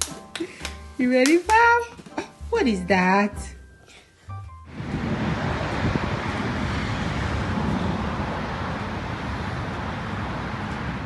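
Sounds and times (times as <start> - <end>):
car road noise: 4.7 - 11.0.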